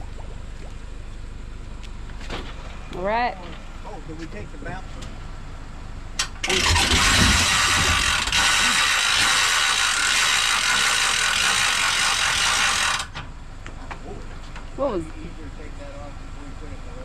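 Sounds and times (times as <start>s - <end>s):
ratchet clicking rapidly: 6.2s - 13.1s.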